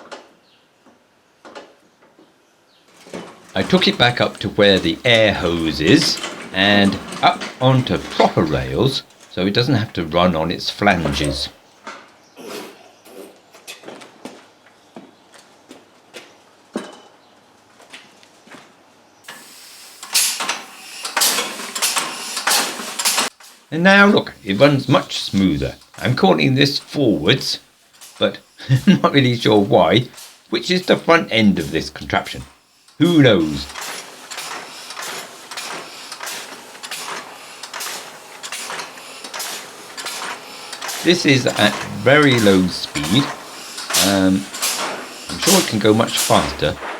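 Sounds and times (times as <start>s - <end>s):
metallic clanking and rattling: 3.0s - 9.4s, 20.1s - 23.7s, 33.5s - 46.9s
metallic clicks and creaks: 3.0s - 9.4s
compressed air hissing: 19.3s - 23.3s, 24.3s - 46.9s.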